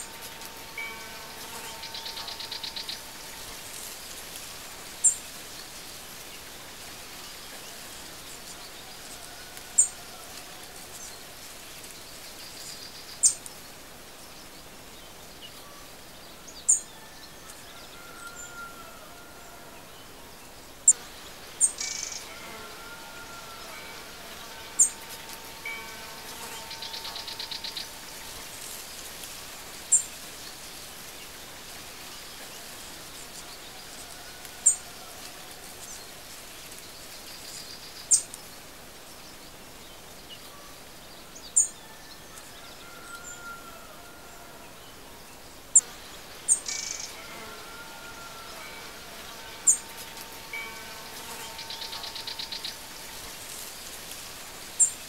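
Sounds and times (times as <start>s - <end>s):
outdoor ambience hiss: 0.0s - 55.0s
birds chirping: 20.5s - 29.2s, 47.8s - 55.0s.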